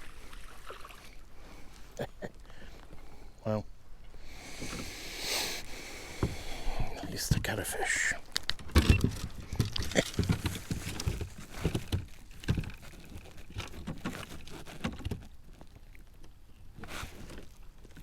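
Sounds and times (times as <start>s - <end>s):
handling noise rustling: 8.2s - 15.8s.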